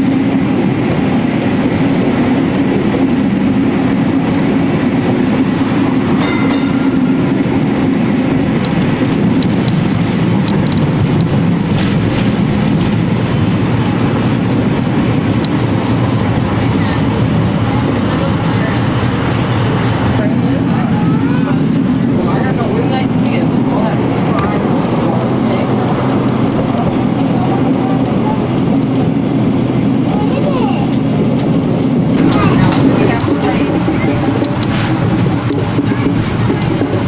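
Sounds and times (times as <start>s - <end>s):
rail clatter: 0.0s - 37.0s
streetcar motors and wheels rumbling: 0.0s - 37.0s
high ringing tone: 6.1s - 9.0s.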